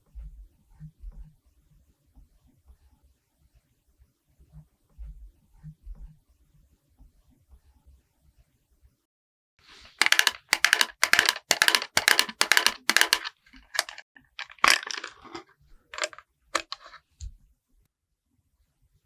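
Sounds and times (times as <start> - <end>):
makeup tool stroking cream: 9.7 - 14.0.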